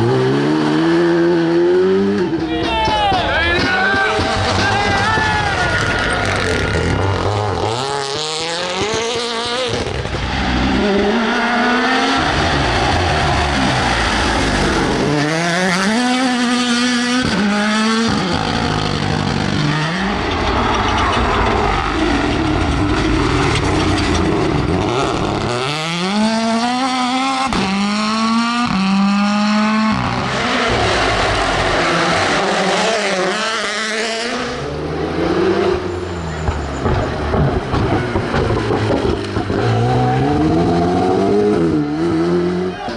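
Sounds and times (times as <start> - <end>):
tyre noise: 0.0 - 26.7, 30.0 - 42.9
rally car engine at full throttle: 0.0 - 42.9.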